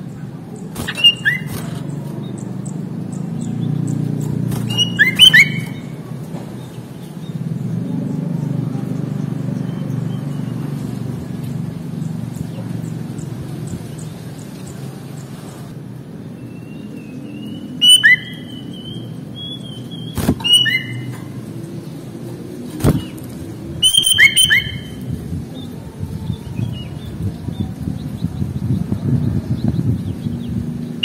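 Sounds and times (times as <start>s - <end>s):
bird chirping loudly: 0.8s - 4.0s, 4.6s - 6.0s, 16.6s - 21.2s, 23.8s - 25.0s.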